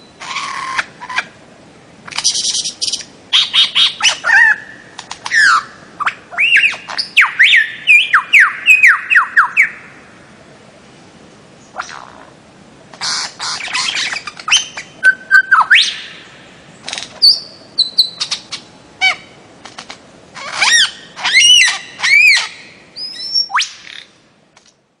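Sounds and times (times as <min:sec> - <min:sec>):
loud arched bird calls: 0:00.0 - 0:01.4, 0:02.1 - 0:10.2, 0:13.0 - 0:19.4, 0:20.3 - 0:24.2
bird squawking and whistling: 0:02.2 - 0:09.8, 0:13.0 - 0:16.3, 0:17.2 - 0:19.3, 0:20.4 - 0:24.1.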